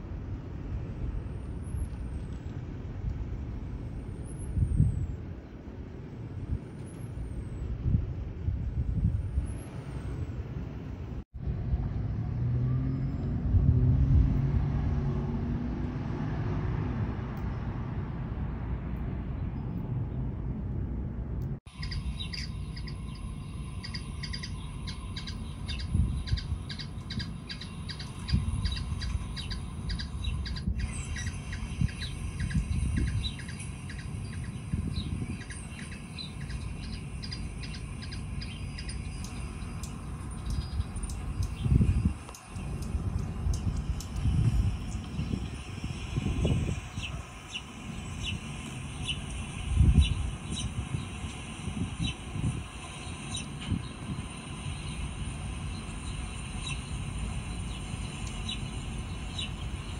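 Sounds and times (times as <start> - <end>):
low traffic rumble: 0.0 - 59.9
vehicle passing: 9.5 - 51.5
steady high whine: 20.7 - 59.9
small birds chirping: 21.7 - 59.9.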